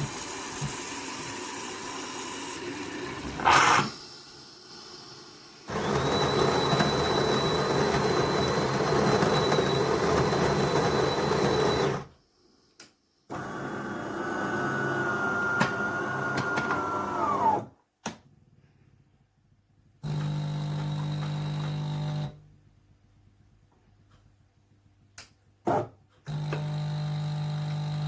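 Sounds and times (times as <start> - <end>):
coffee machine whirring: 5.6 - 12.1, 13.3 - 17.7, 26.3 - 28.0.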